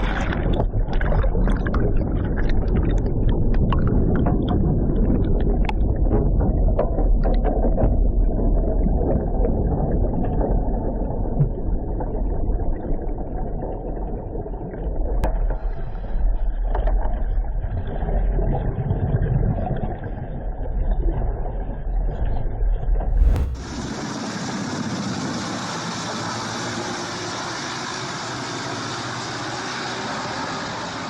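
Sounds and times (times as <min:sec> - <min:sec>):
low engine rumble: 0:23.0 - 0:24.1.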